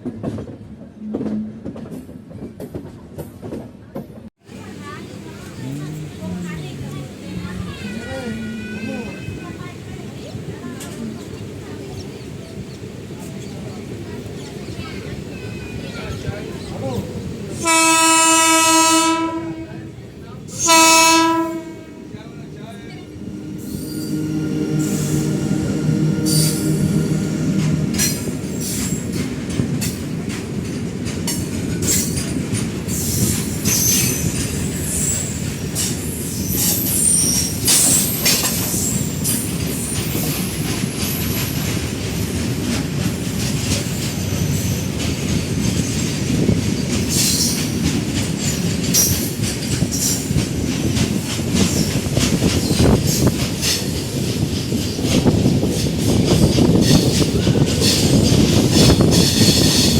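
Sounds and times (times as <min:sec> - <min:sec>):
train rumbling: 0:00.0 - 0:59.9
wheels clattering over rail joints: 0:26.3 - 0:59.9
high-pitched wheel squeal: 0:36.1 - 0:39.1.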